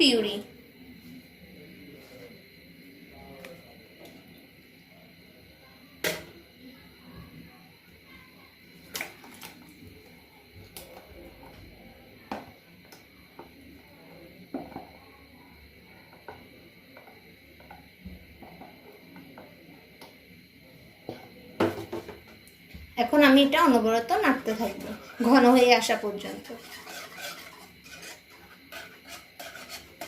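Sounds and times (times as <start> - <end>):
spoon scraping cooking pot: 24.7 - 30.0.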